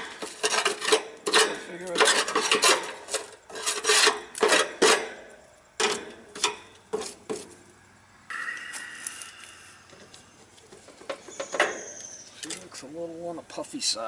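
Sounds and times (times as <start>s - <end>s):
faint steady whine: 5.0s - 14.0s.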